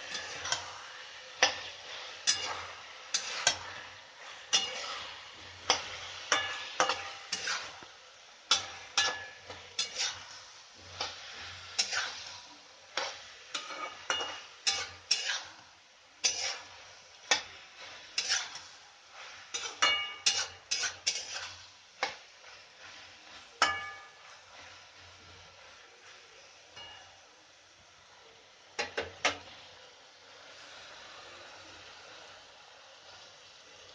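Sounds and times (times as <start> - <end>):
faint sizzle: 0.0 - 33.9
metal spoon clinking in pan: 0.1 - 0.7, 2.2 - 3.6, 4.5 - 4.9, 5.7 - 7.7, 8.5 - 10.2, 13.0 - 15.4, 19.5 - 22.2, 23.6 - 24.3, 26.8 - 27.1.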